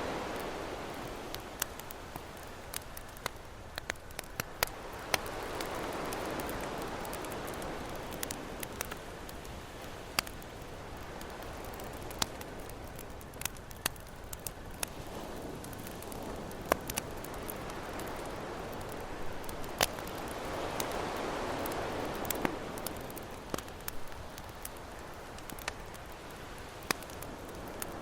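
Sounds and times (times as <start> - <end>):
ocean waves: 0.0 - 13.5, 14.4 - 28.0
campfire crackling and popping: 0.0 - 28.0.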